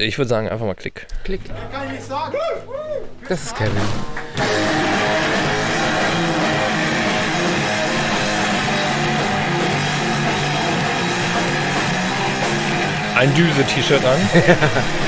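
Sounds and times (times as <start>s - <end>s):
drums: 2.6s - 15.0s
distorted electric guitar chords: 3.7s - 15.0s.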